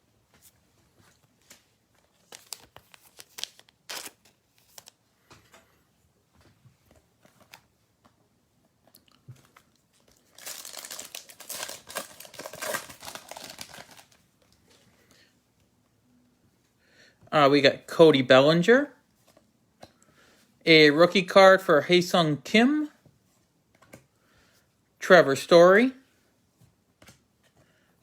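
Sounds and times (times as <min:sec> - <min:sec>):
cards being handled: 0:00.3 - 0:05.0, 0:09.4 - 0:14.2
card pack wrapper tearing: 0:02.1 - 0:05.0, 0:10.1 - 0:14.2.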